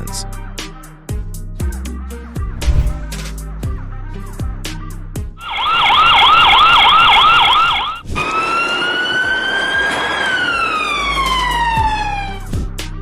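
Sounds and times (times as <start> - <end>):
emergency vehicle siren: 5.4 - 12.7.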